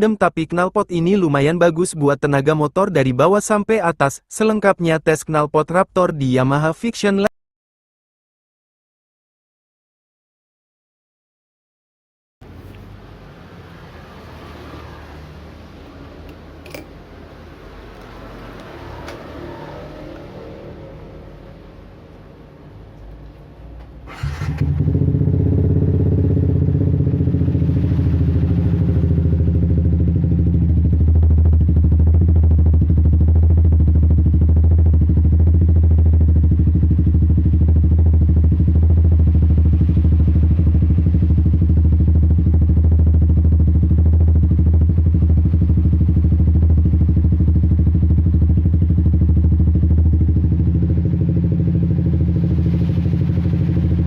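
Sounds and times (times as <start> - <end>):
motorcycle engine starting: 12.5 - 22.1, 23.7 - 54.0
motorcycle engine running: 23.8 - 54.0.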